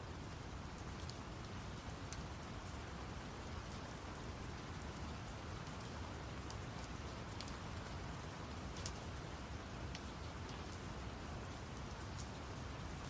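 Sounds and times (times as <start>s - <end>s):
rain ambience: 0.0s - 13.0s
raindrop ticks: 0.6s - 2.4s, 4.9s - 9.1s, 9.9s - 10.8s, 11.6s - 12.5s.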